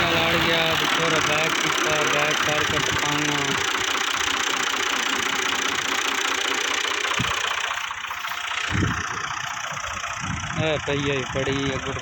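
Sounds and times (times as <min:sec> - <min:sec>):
tractor engine clattering: 0:00.0 - 0:12.0.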